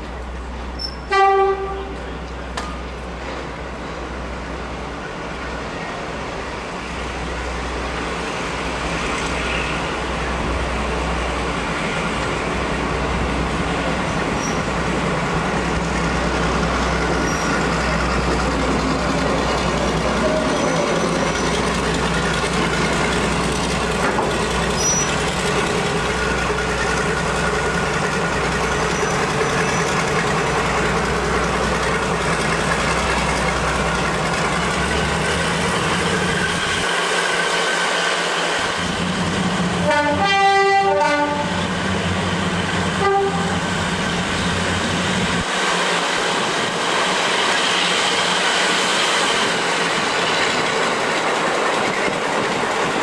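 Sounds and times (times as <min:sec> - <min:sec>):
train rumbling: 0:00.0 - 0:53.0
two-tone train horn: 0:01.0 - 0:02.1, 0:39.8 - 0:41.6, 0:43.0 - 0:43.6.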